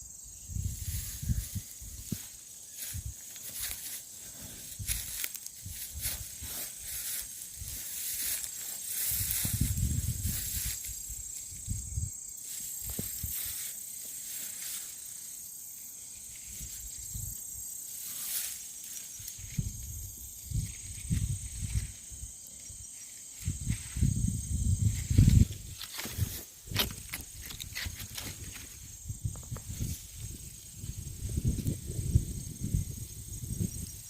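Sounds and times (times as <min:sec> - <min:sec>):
high insect drone: 0:00.0 - 0:34.0
footsteps on woodland floor: 0:01.3 - 0:10.9, 0:25.1 - 0:30.0.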